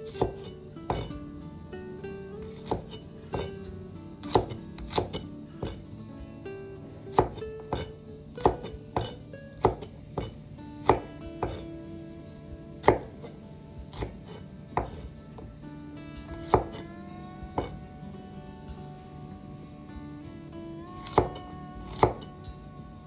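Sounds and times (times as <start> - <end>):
knife chopping on cutting board: 0.0 - 1.1, 2.5 - 3.6, 4.2 - 5.8, 7.1 - 11.7, 12.8 - 15.5, 16.4 - 16.9, 17.6 - 17.8, 21.0 - 22.3
soft plucked-string music: 0.0 - 23.0.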